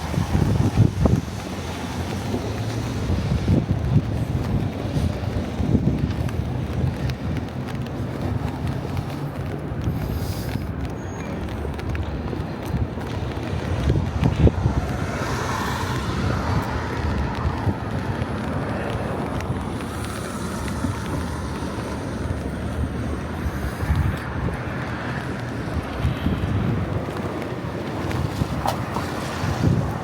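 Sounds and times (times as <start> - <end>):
wind buffeting microphone: 0.0 - 30.0
steady outdoor hiss: 6.4 - 13.5.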